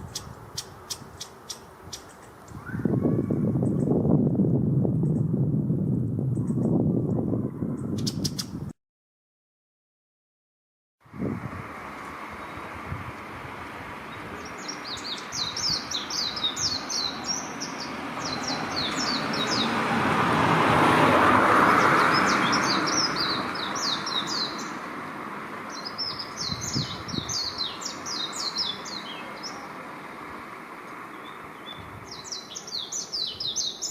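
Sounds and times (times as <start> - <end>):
bird twittering: 0.0 - 3.9, 7.8 - 8.6
passing vehicle: 11.0 - 33.9.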